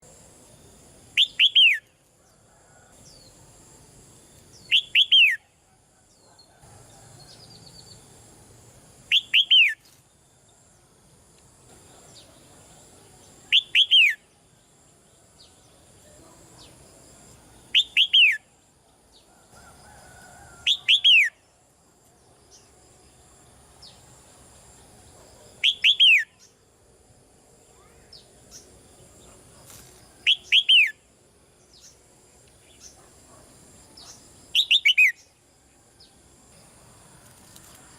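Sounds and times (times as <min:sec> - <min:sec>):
faint bird chirps: 0:00.5 - 0:03.5, 0:11.7 - 0:21.6, 0:25.1 - 0:26.6, 0:27.6 - 0:31.1, 0:32.6 - 0:35.4.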